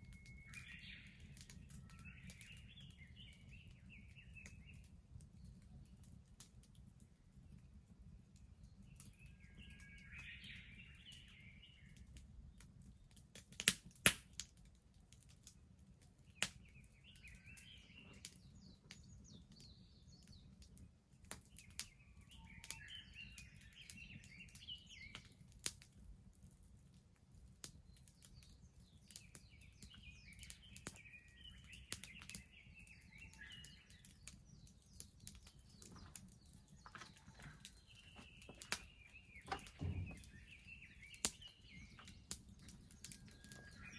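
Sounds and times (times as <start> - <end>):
songbird chirping: 0.0 - 5.6, 8.6 - 12.0, 16.2 - 25.5, 27.8 - 43.9
bonfire crackling and popping: 0.0 - 43.9.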